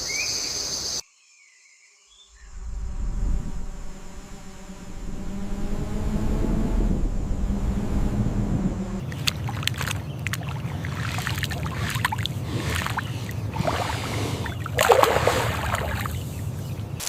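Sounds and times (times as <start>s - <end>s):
steady low rumble: 2.3s - 17.0s
water sloshing and splashing: 9.0s - 17.0s.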